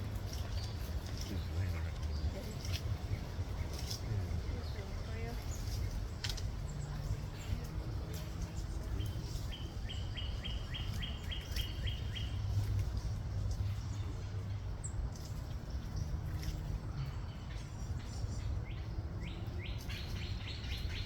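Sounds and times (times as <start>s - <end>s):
low background rumble: 0.0s - 21.0s.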